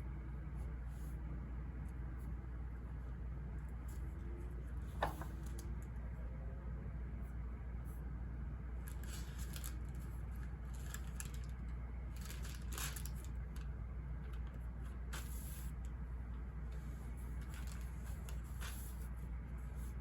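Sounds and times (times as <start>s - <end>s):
low ambient rumble: 0.0s - 20.0s
paper rustling and scratching: 8.8s - 15.8s, 16.7s - 20.0s.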